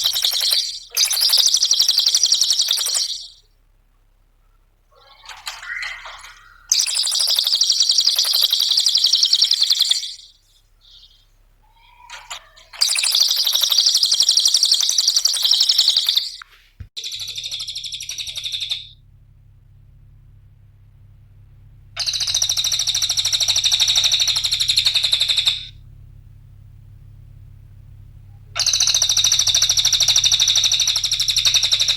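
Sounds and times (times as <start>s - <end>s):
songbird chattering trills: 0.0s - 3.5s, 4.9s - 16.4s, 17.0s - 18.9s, 22.0s - 25.7s, 28.6s - 31.9s.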